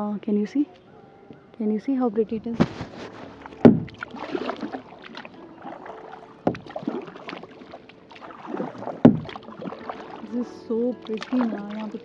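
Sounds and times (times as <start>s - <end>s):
water trickling: 2.1s - 12.0s
paddle splashing in water: 2.6s - 12.0s.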